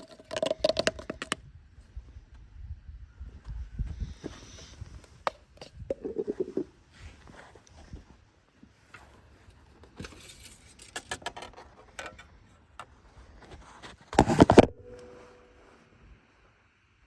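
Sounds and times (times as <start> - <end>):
objects clicking and rattling: 9.8 - 12.4.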